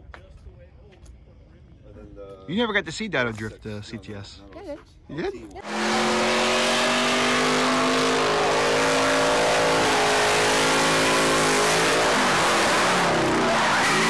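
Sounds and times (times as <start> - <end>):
car engine at high revs: 5.6 - 14.0.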